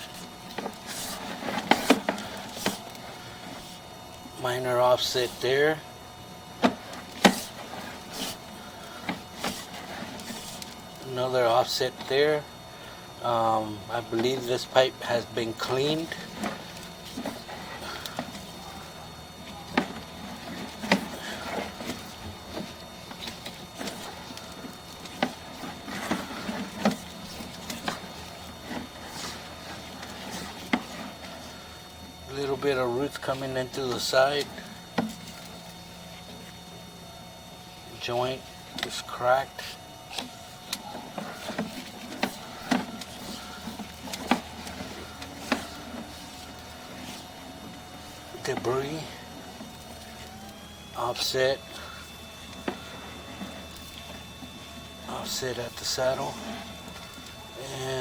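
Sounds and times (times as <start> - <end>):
cable and reel clicking: 0.0 - 4.3, 6.5 - 12.4, 13.4 - 36.7, 38.4 - 58.0
steady low hum: 0.0 - 58.0.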